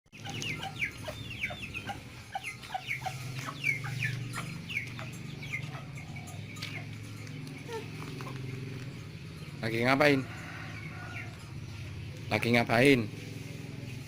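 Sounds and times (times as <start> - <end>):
birds chirping: 0.1 - 14.0.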